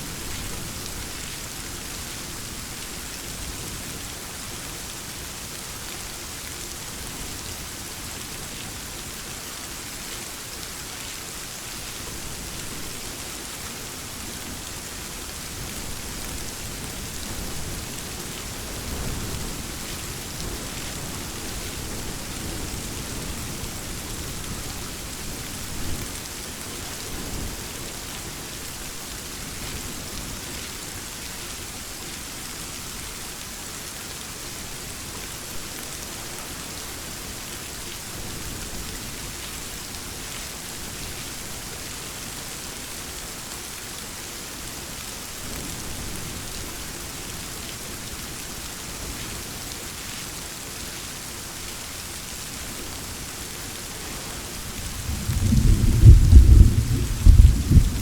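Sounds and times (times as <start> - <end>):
steady rain falling: 0.0 - 58.0
thunder rumbling: 54.8 - 58.0.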